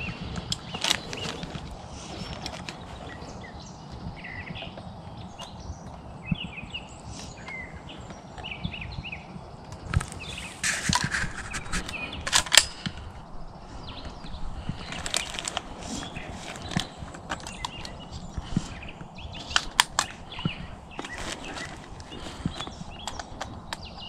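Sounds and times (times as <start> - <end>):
sharp clicks and rustles: 0.0 - 3.3, 9.7 - 13.1, 14.0 - 24.0
footsteps crunching on dry ground: 0.0 - 24.0.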